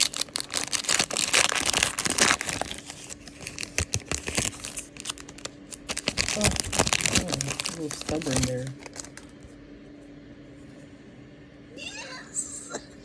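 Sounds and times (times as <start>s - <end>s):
card pack wrapper crinkling and tearing: 0.0s - 9.5s.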